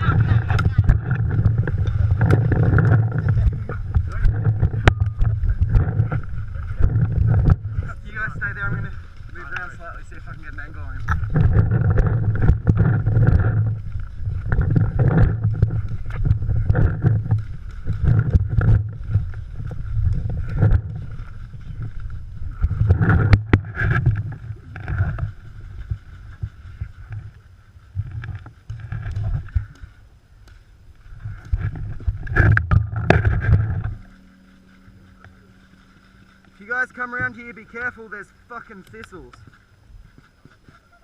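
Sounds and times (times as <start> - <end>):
footsteps: 0.0 - 41.0
gear rustling: 0.0 - 41.0
heavy thumps: 31.5 - 37.6.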